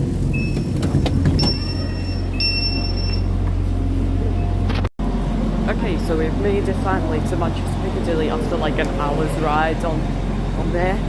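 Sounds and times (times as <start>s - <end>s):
passenger train rumbling: 0.0s - 11.0s
high-pitched tones: 1.4s - 3.4s.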